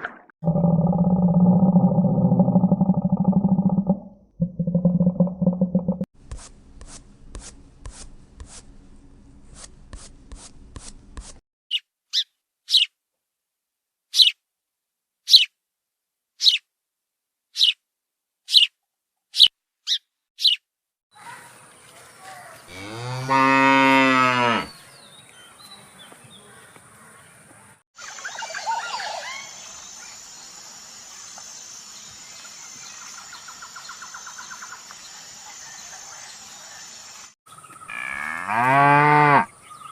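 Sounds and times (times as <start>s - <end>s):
cow mooing: 22.7s - 24.8s, 37.9s - 39.5s.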